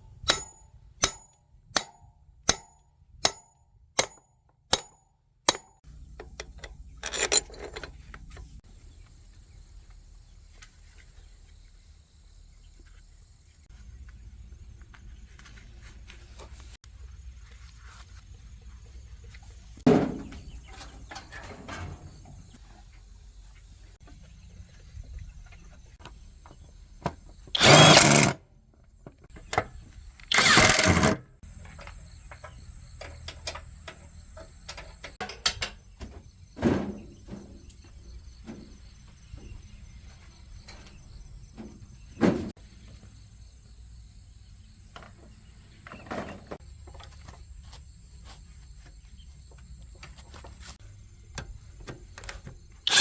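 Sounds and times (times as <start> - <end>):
tools clicking on metal: 4.8 - 8.4, 27.6 - 28.4, 30.3 - 31.2.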